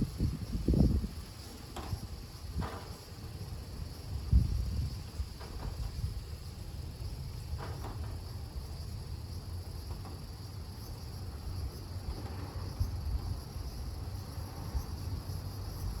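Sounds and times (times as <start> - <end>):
gusty wind buffeting microphone: 0.0 - 7.6
insects chirring: 0.0 - 16.0.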